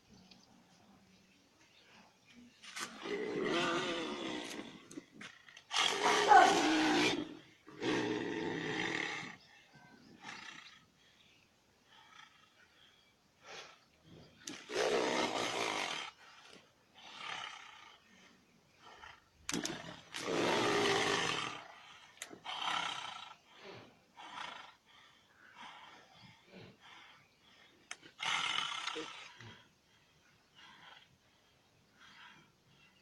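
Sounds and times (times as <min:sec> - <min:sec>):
large animal roaring and snarling: 0:02.8 - 0:05.0, 0:05.7 - 0:09.4, 0:19.5 - 0:23.3.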